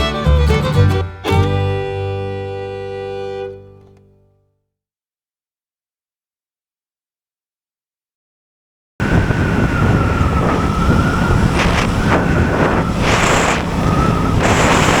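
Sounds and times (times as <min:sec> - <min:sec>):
wind rushing over microphone: 0:09.0 - 0:15.0
thin high whine: 0:09.1 - 0:15.0.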